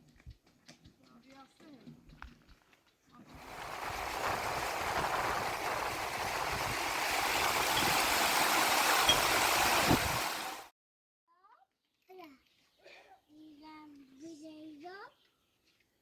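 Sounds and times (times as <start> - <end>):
running water rushing: 3.3 - 10.7.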